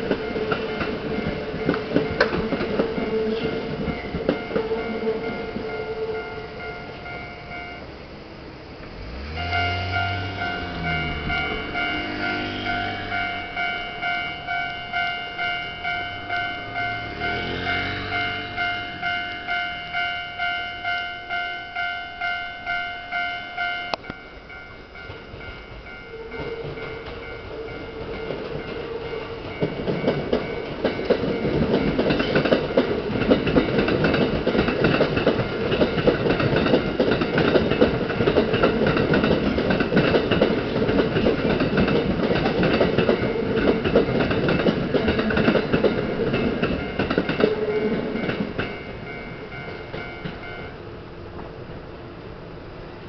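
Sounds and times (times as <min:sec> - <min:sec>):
wheels clattering over rails: 0:00.0 - 0:06.2, 0:25.0 - 0:50.7
level-crossing bell ringing: 0:00.0 - 0:07.9, 0:09.4 - 0:33.1, 0:42.4 - 0:50.8
electric train passing: 0:00.0 - 0:53.0.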